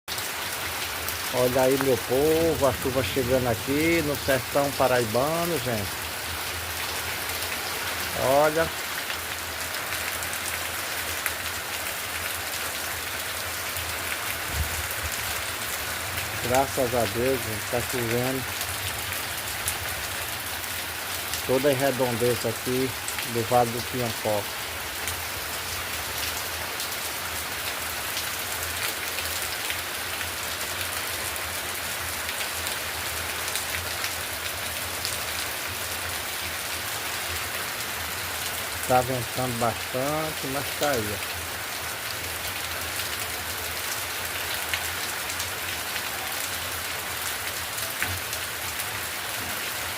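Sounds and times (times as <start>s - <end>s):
rain falling on surfaces: 0.1s - 49.9s
raindrops ticking: 1.5s - 6.1s.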